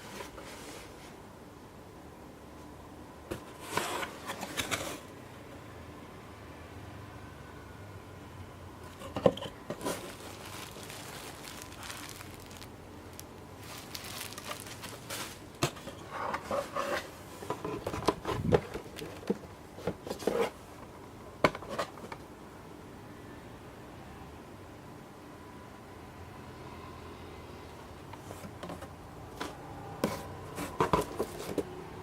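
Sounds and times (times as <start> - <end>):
packaging crinkling and rustling: 9.2 - 20.6.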